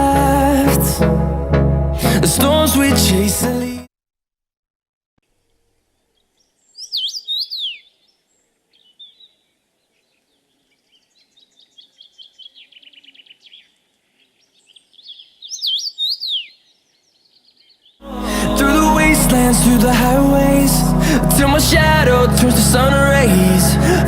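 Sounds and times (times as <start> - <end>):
songbird singing whistled notes: 6.7 - 7.9, 14.4 - 18.0.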